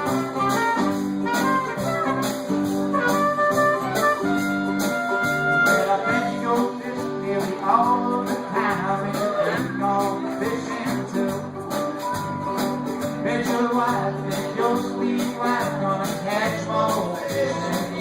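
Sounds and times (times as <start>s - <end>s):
live band playing blues: 0.0s - 18.0s.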